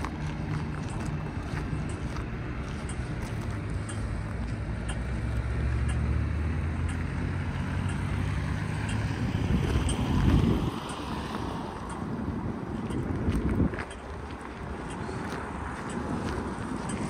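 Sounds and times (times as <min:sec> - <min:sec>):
faint footsteps clicking: 0:00.0 - 0:06.2, 0:08.8 - 0:17.0
vehicle engine humming: 0:00.0 - 0:17.0.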